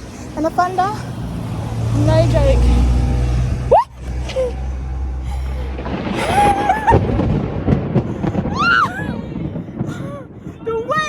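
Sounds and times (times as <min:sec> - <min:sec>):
low rumble: 0:00.0 - 0:11.0
loud thunderclap: 0:01.0 - 0:11.0
people shrieking and crying out: 0:03.6 - 0:04.7, 0:05.4 - 0:07.2.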